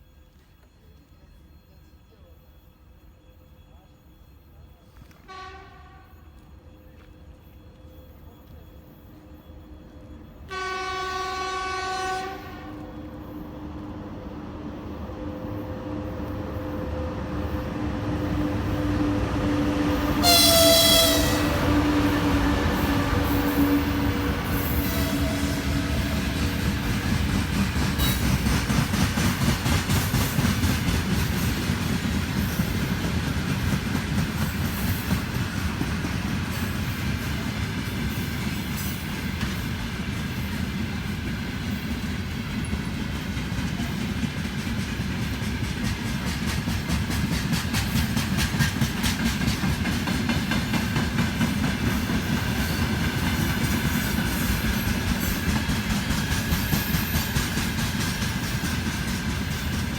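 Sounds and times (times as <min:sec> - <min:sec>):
train wheels clattering over rails: 0:16.1 - 0:59.9.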